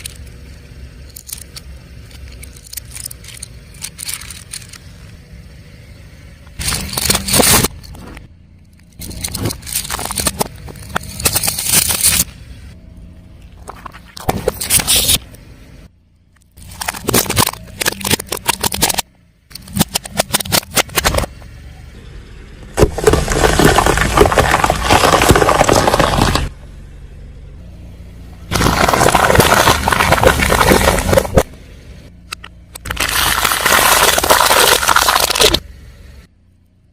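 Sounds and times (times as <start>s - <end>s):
tyre crushing crunchy objects: 6.6s - 8.2s, 8.9s - 12.3s, 16.6s - 21.3s, 22.8s - 26.5s, 28.5s - 31.6s, 32.8s - 35.6s.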